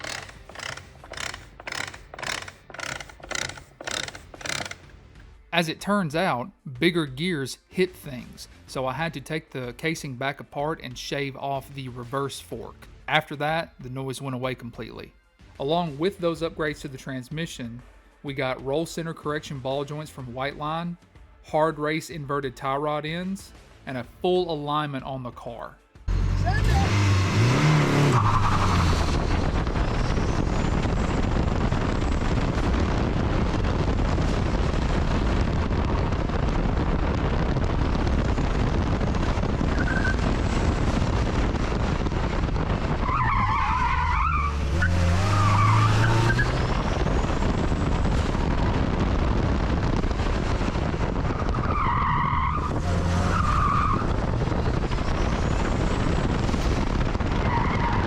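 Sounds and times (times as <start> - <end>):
car engine revving hard: 26.1 - 30.0, 38.8 - 48.4, 52.6 - 54.9
tires squealing: 26.1 - 32.8, 35.8 - 58.0.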